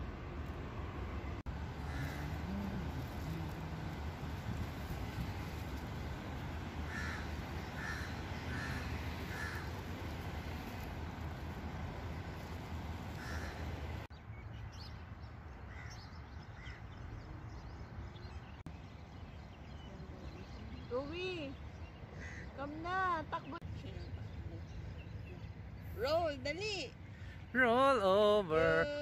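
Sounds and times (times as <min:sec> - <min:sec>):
steady low rumble: 0:00.0 - 0:14.1
bird calling: 0:01.7 - 0:03.5, 0:06.0 - 0:10.9, 0:13.1 - 0:14.1.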